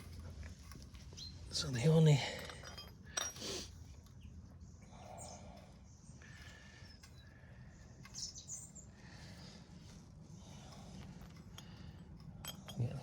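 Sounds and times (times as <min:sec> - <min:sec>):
light rustling and scraping: 0:00.0 - 0:04.2, 0:08.0 - 0:13.0.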